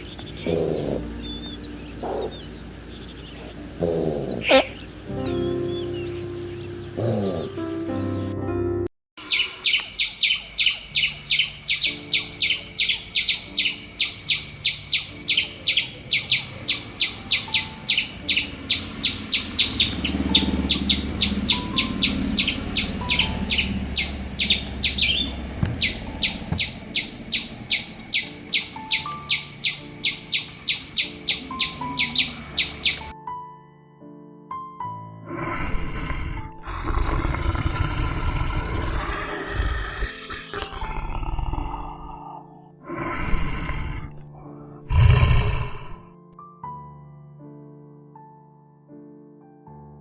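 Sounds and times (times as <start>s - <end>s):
soft background music: 0.0s - 50.0s
animal chirping call: 3.4s - 6.1s, 9.2s - 33.2s.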